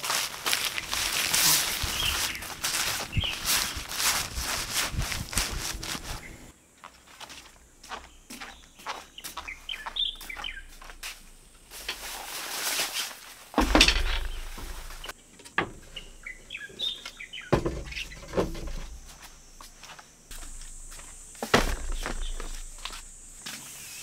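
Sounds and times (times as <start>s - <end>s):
rustling: 0.0s - 6.5s, 10.0s - 15.2s
birds chirping: 0.4s - 12.0s, 13.6s - 24.0s
dull thumps: 13.6s - 16.1s, 17.5s - 19.2s, 20.3s - 23.4s.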